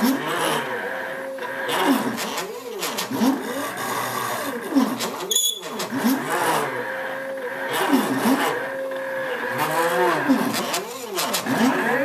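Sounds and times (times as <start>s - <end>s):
brief high squeak: 5.2s - 5.9s.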